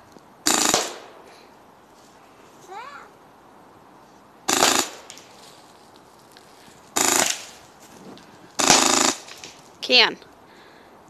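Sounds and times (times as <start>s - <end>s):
airsoft gun automatic bursts: 0.4s - 1.1s, 4.5s - 5.3s, 7.0s - 7.6s, 8.6s - 9.6s.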